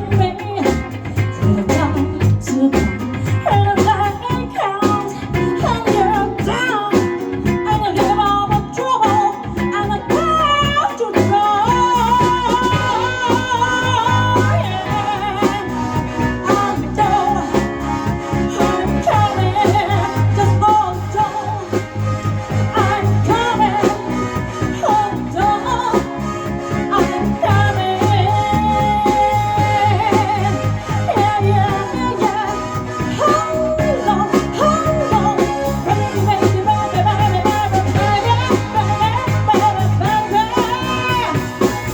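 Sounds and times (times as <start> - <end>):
drums: 0.0 - 41.9
steady bass line: 0.0 - 41.9
gliding melodic lead: 9.4 - 41.9.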